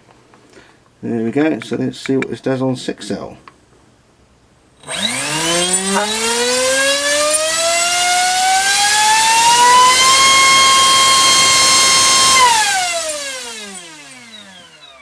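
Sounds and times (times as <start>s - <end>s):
electric motor propeller whine: 4.8s - 15.0s.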